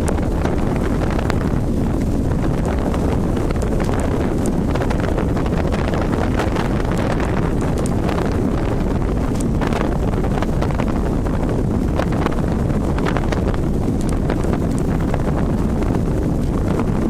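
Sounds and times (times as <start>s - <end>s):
scattered crackles: 0.0s - 17.0s
wind buffeting microphone: 0.0s - 17.0s.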